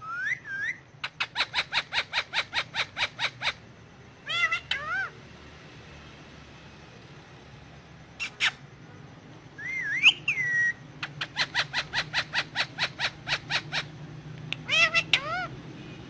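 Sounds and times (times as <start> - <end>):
parakeet whistling: 0.0 - 3.6, 4.3 - 5.1, 9.6 - 14.0, 14.6 - 15.6
parakeet chirping: 0.0 - 5.2, 8.2 - 8.6, 9.6 - 16.0
parakeet calls: 0.0 - 5.3, 8.2 - 8.7, 9.5 - 16.0.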